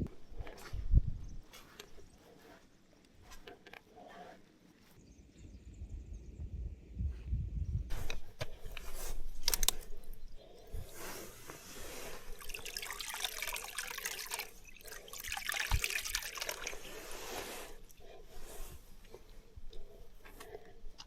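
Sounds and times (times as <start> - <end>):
sharp clicks: 8.1 - 10.2
water pouring and trickling: 11.6 - 18.0.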